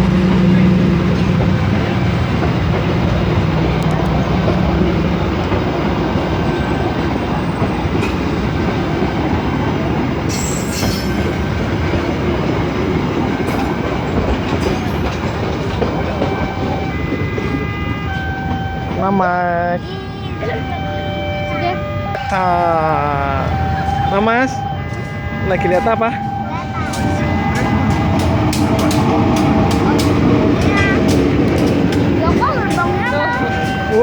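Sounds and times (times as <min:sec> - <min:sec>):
low engine hum: 0:00.0 - 0:10.3, 0:20.0 - 0:34.0
train wheels rumbling on rails: 0:00.0 - 0:34.0
high wheel squeal: 0:10.3 - 0:16.0.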